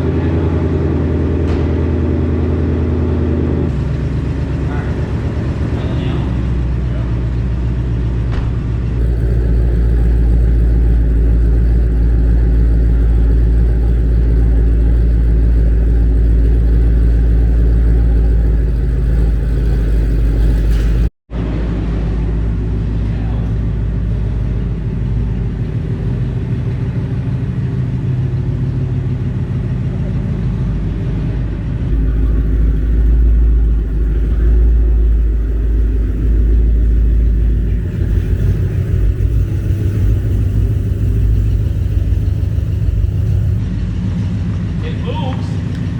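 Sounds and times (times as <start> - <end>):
car engine rumbling: 0.0 - 21.1, 31.9 - 43.8.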